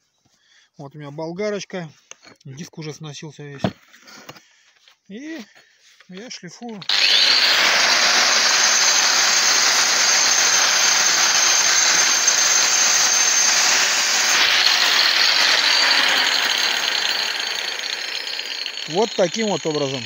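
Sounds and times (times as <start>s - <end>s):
angle grinder grinding brick: 6.7s - 20.0s.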